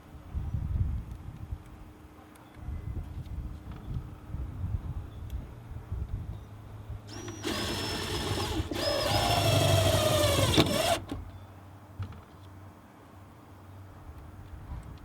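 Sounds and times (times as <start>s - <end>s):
power drill whining: 7.1s - 11.2s.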